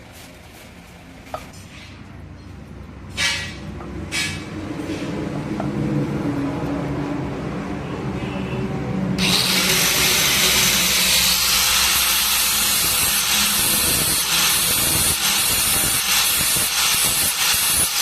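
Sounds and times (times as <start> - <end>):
power tool grinding metal: 9.2 - 18.0.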